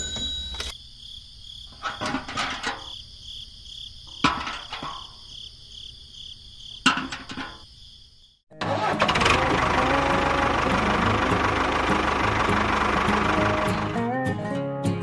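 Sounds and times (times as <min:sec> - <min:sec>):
crickets chirping: 0:00.0 - 0:08.4.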